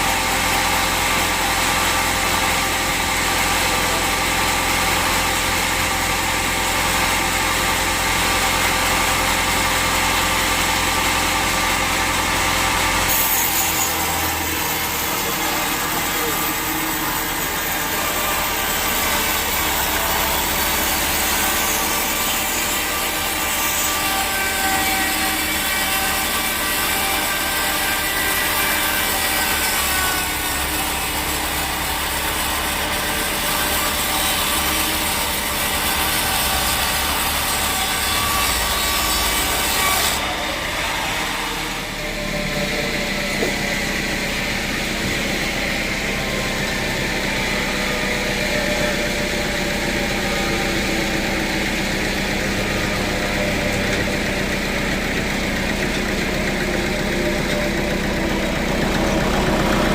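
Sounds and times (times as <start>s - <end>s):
saw grinding through log: 0.0s - 59.9s
engine running: 41.3s - 59.9s.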